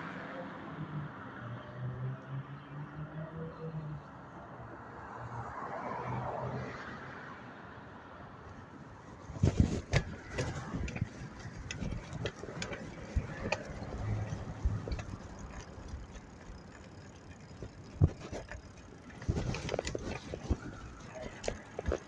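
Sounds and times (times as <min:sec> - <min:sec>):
low road rumble: 0:08.4 - 0:22.0
bicycle rattling and clicking: 0:08.8 - 0:22.0.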